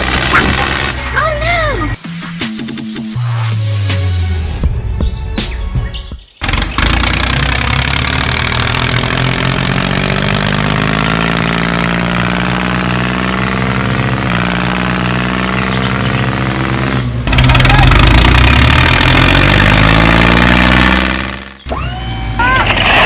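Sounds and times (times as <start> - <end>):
engine running steadily: 6.4 - 23.0.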